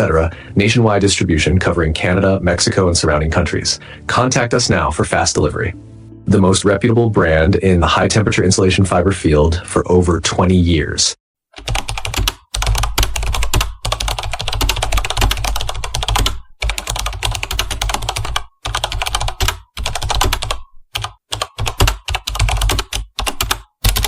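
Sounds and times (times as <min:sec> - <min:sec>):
rapid typing on computer keyboard: 0:11.6 - 0:24.0.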